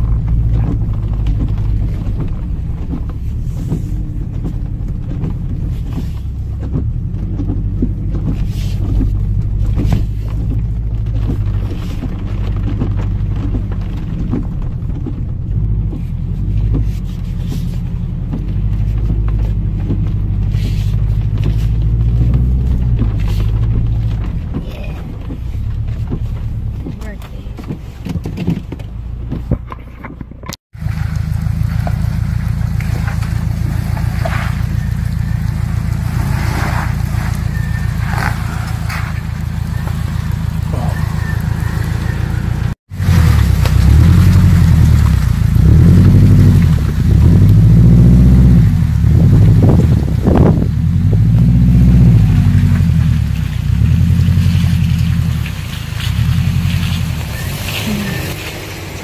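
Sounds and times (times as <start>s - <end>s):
faint knocks and rattles: 0.0s - 30.6s
vehicle engine labouring: 0.0s - 59.0s.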